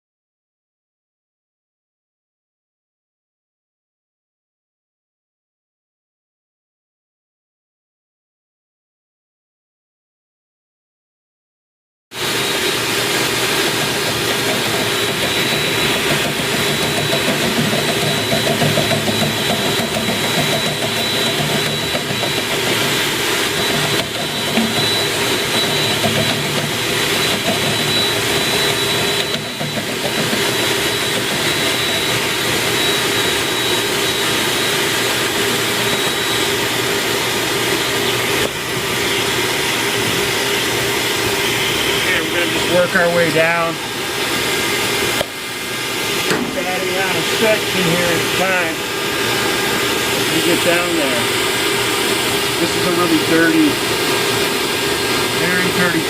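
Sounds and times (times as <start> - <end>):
vent cleaning machine whining: 12.1 - 56.0.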